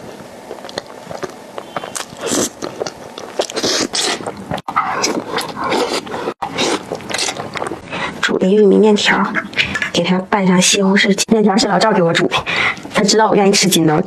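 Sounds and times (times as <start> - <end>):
person chewing and smacking: 0.0 - 7.9.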